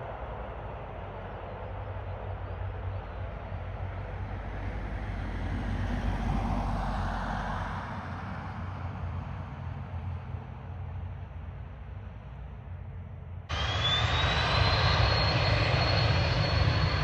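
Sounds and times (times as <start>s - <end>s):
low rumble: 13.5s - 17.0s.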